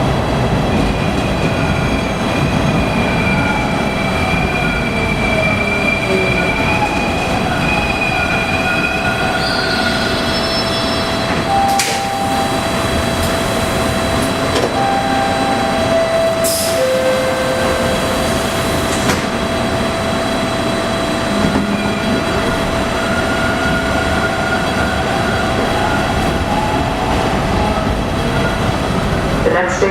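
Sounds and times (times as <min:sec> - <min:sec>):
subway train noise: 0:00.0 - 0:29.9
short tones: 0:11.5 - 0:18.7.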